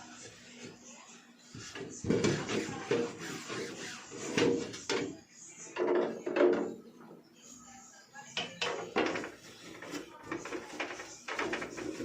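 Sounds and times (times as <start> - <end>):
refrigerator parts knocking and clattering: 5.8 - 6.8, 8.5 - 12.0.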